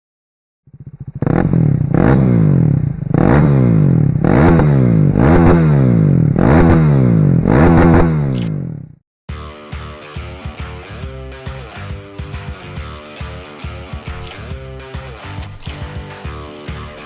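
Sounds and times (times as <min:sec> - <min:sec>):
motorcycle engine revving: 0:00.7 - 0:09.0, 0:12.4 - 0:17.0.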